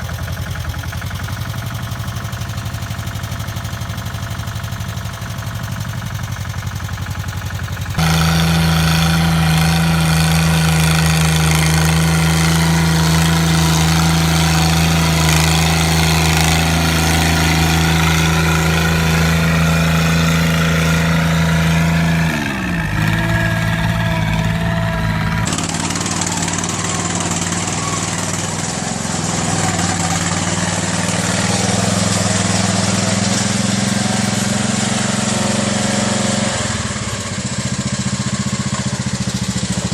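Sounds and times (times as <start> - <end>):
mini-tractor engine running: 0.0 - 39.9.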